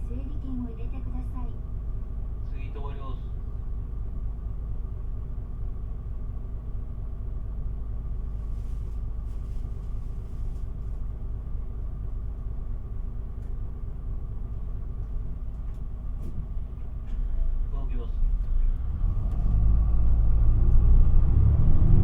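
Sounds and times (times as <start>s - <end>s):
bus diesel engine idling: 0.0s - 20.7s.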